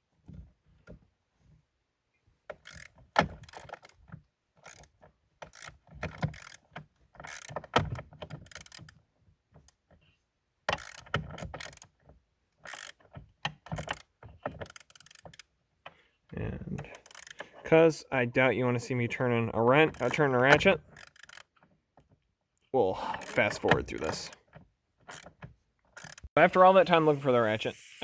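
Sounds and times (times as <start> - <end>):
ratchet wrench clicking: 2.6 - 4.0, 4.6 - 8.9, 10.7 - 11.9, 12.6 - 13.0, 13.7 - 15.4, 16.9 - 17.4, 20.9 - 21.5, 25.1 - 25.3, 26.0 - 26.3.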